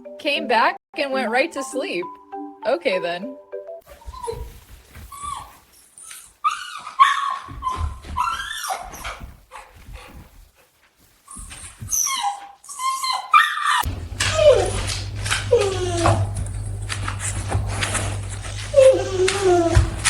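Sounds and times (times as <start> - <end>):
dog whining: 3.9 - 9.3, 11.3 - 20.0
dog barking and yipping: 6.4 - 9.7, 11.9 - 20.0.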